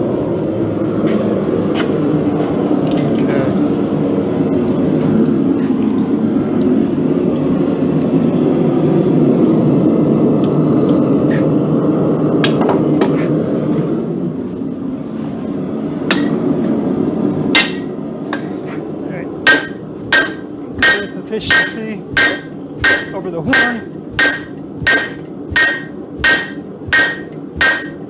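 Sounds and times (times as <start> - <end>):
steady rushing noise: 13.5 - 28.0
hammer blows on steel anvil: 19.5 - 28.0.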